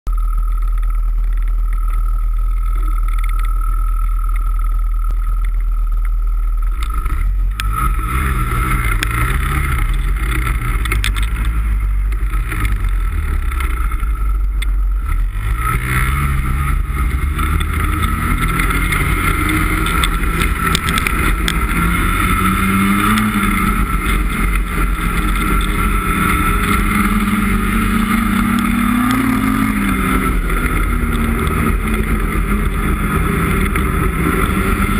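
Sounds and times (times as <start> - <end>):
snowmobile engine accelerating: 6.4 - 14.4, 15.0 - 34.9.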